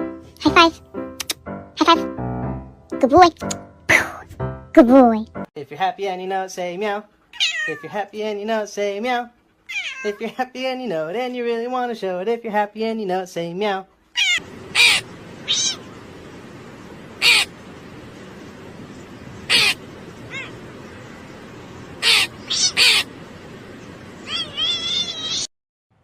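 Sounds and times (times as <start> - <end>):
steady background hiss: 5.6 - 25.5
cat meowing: 7.3 - 8.0, 9.6 - 10.2, 14.1 - 15.9, 17.2 - 17.5, 19.5 - 20.6, 22.0 - 23.1, 24.2 - 25.5.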